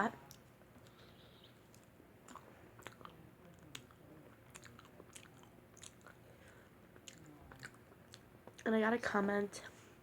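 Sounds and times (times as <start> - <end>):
chewing with wet smacks: 1.6 - 8.8.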